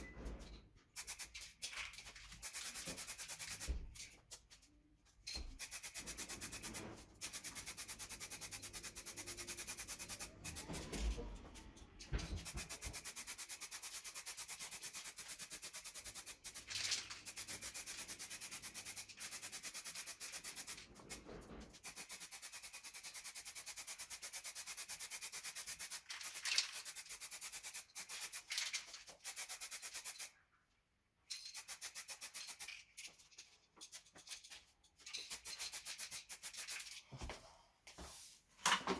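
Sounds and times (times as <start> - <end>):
sandpaper rubbing: 2.3 - 3.7, 5.6 - 10.8, 12.4 - 21.2, 21.8 - 28.5, 29.1 - 30.3, 31.5 - 32.8, 35.3 - 36.9.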